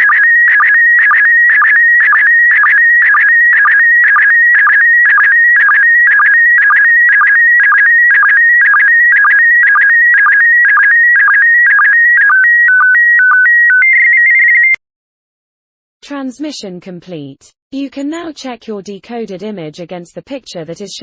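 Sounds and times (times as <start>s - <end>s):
sync blips: 0.0s - 13.4s.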